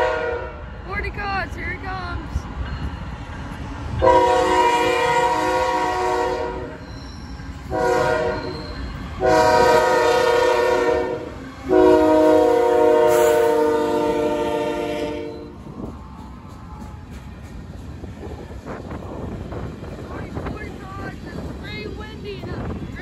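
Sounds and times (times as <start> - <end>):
locomotive air horn blasts: 0.0 - 0.6, 4.0 - 6.8, 7.7 - 8.6, 9.2 - 15.6
low rumble of train: 0.0 - 23.0.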